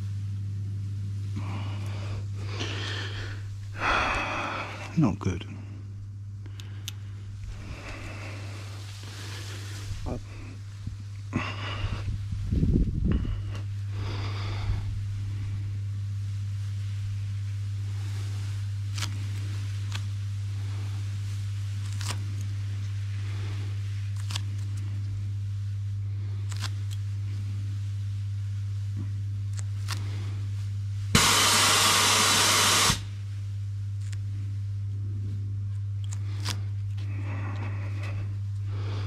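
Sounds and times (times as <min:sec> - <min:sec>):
steady low hum: 0:00.0 - 0:39.0
loud hissing burst: 0:31.1 - 0:33.2.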